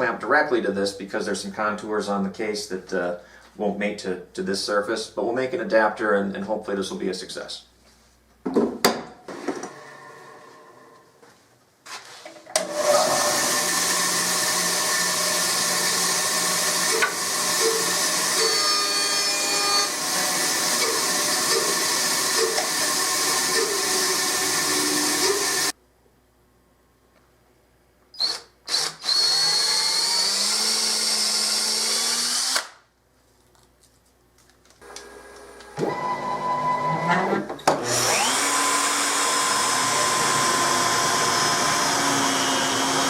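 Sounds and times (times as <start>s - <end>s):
power tool running: 12.6s - 25.8s, 28.2s - 32.8s, 34.8s - 43.0s.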